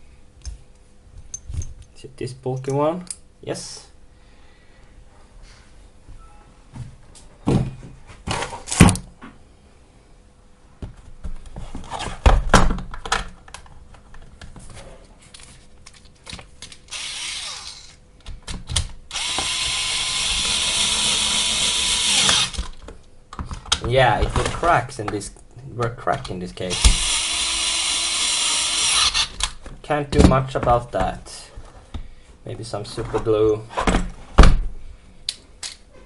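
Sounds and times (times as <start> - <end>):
power screwdriver running: 16.9 - 18.0, 19.1 - 22.6, 26.7 - 29.4.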